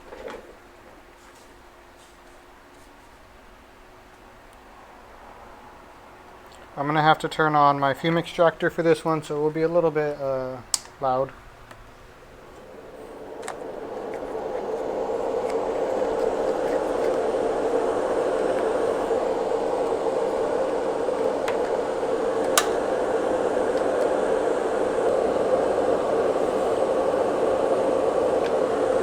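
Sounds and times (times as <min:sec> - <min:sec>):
fume extractor fan humming: 0:03.5 - 0:29.0
faint click: 0:22.4 - 0:22.9.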